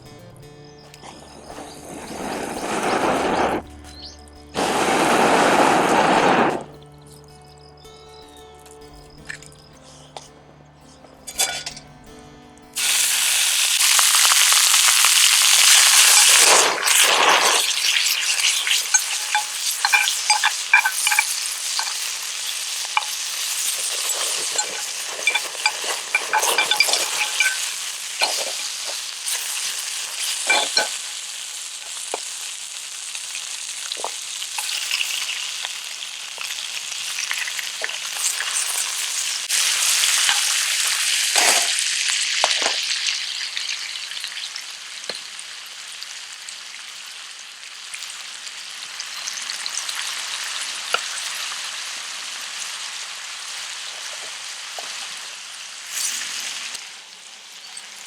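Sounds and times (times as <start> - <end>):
music: 0.0 - 16.2, 16.9 - 31.2
utensil scraping pan: 1.0 - 3.6, 15.8 - 31.1, 36.4 - 41.8
food sizzling in frying pan: 1.0 - 6.8, 12.8 - 58.0.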